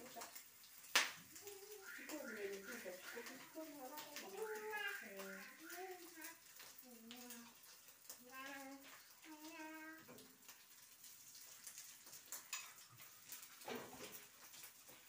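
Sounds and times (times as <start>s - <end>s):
patty sizzling in a frying pan: 0.0s - 15.0s.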